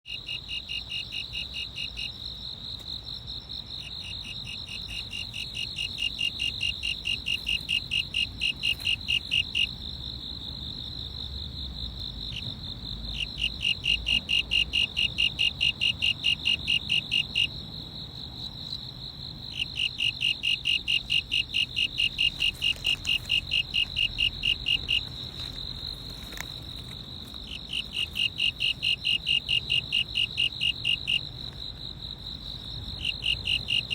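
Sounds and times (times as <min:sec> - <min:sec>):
insect rapid pulses: 0:00.1 - 0:33.9
insect high trill: 0:19.5 - 0:31.3.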